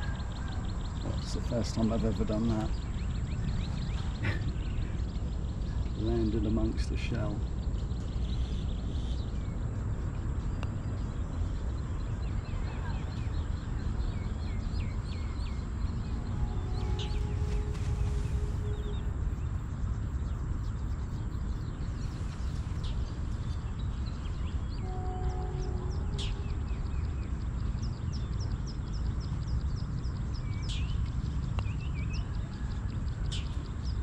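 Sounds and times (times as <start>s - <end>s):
birds chirping: 0.0s - 34.0s
wind rumbling on microphone: 0.0s - 34.0s
sharp falling whistled calls: 16.3s - 19.1s.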